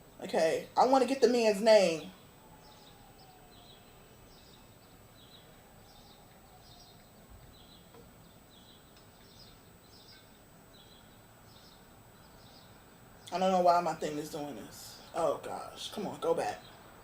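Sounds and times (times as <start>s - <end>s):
small high chirps: 1.9s - 13.4s.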